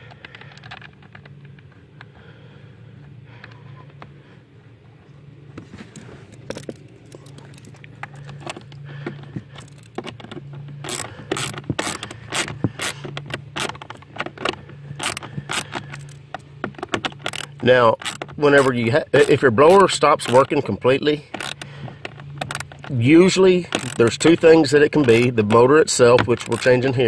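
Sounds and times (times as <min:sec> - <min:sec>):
ratchet clicking: 0:09.5 - 0:20.6, 0:21.3 - 0:27.0.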